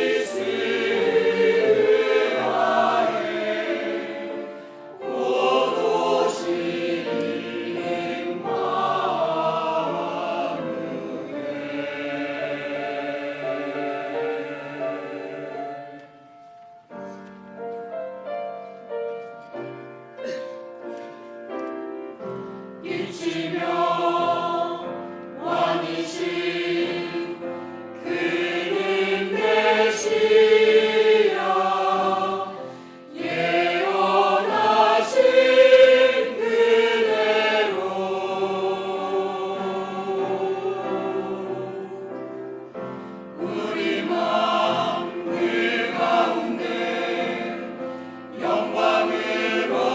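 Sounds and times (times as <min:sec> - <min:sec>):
choir singing with accompaniment: 0:00.0 - 0:17.4, 0:22.1 - 0:49.9.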